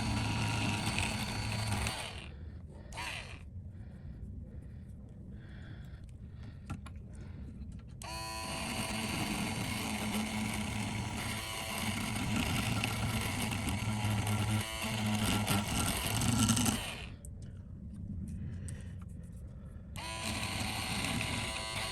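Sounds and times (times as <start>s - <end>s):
electric bench tool humming: 0.0s - 3.4s, 8.0s - 17.2s, 20.0s - 21.9s.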